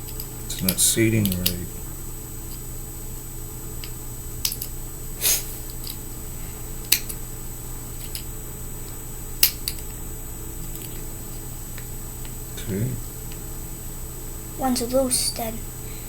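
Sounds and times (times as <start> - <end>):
small sharp clicks: 3.8 - 4.8.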